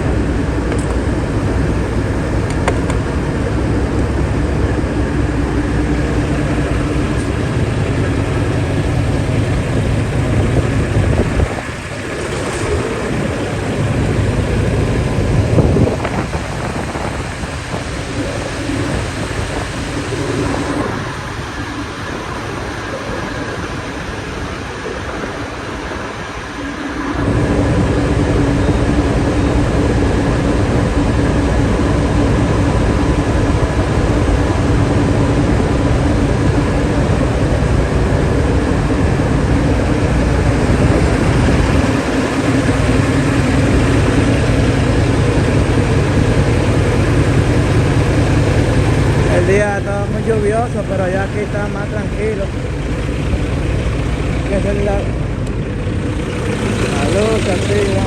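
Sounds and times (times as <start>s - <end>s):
diesel truck engine rumbling: 0.0s - 58.0s.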